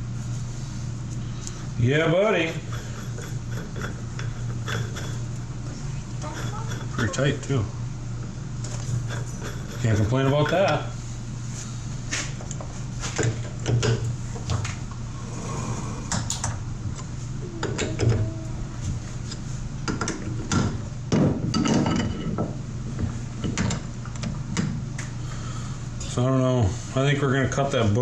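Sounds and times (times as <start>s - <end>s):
low shop hum: 0.0s - 28.0s.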